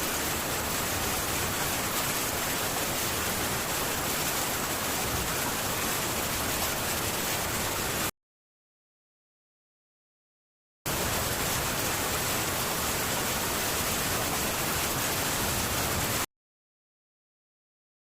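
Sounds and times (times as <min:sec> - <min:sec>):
rain on a tin roof: 0:00.0 - 0:08.1, 0:10.9 - 0:16.3.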